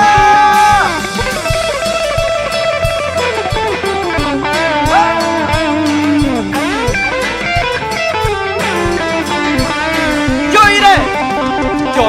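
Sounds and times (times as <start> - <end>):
bass guitar: 0.0 - 12.0
electric guitar lead: 0.0 - 12.0
steady drum beats: 0.0 - 12.0.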